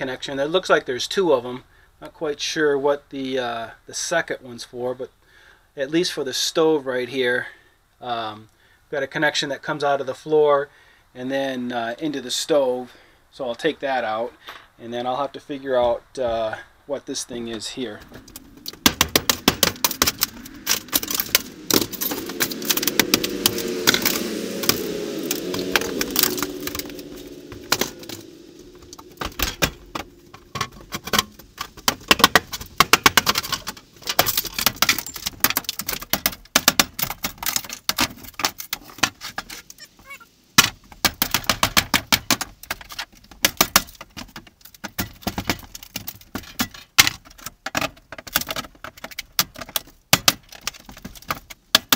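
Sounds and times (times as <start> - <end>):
wavering pitched sound: 18.0 - 32.1
tools and metal parts clattering: 30.6 - 39.6, 42.7 - 51.6.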